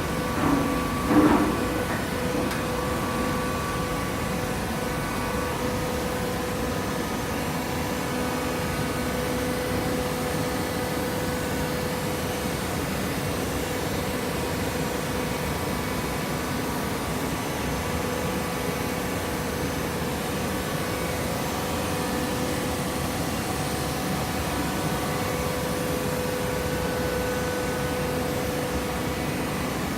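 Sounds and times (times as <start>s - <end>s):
baler machine humming: 0.0s - 6.0s.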